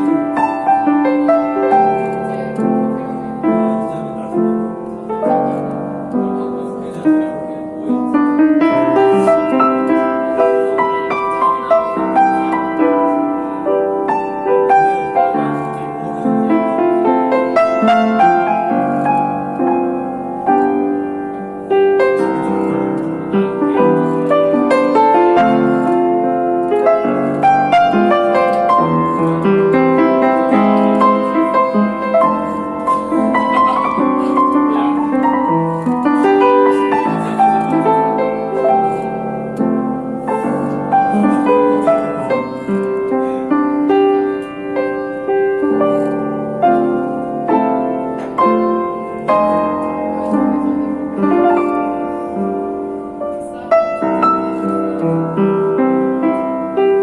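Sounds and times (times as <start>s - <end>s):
slow solo piano melody: 0.0s - 57.0s.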